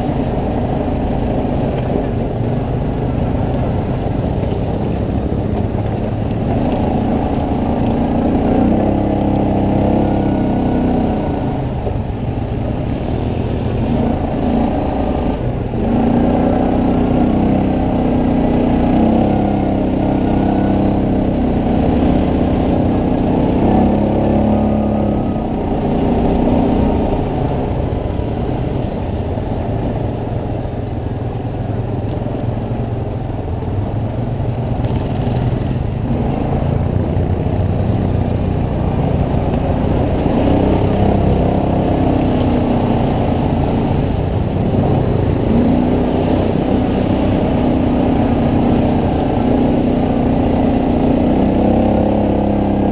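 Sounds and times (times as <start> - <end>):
quad bike engine revving: 0.0 - 52.9.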